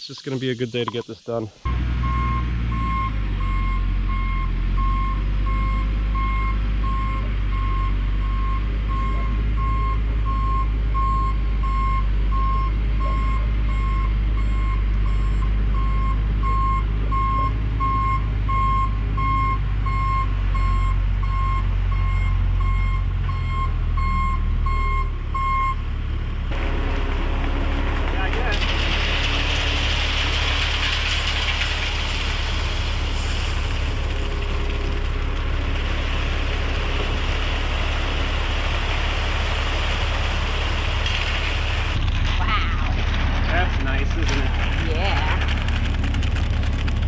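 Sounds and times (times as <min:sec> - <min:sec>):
reversing alarm beeps: 0:01.7 - 0:25.8
truck engine running: 0:01.7 - 0:47.0.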